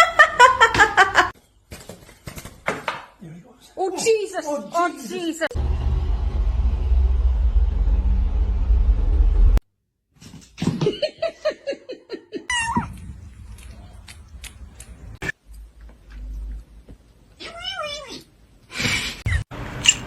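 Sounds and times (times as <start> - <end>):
loud low rumbling: 5.6 - 9.6, 12.8 - 15.2.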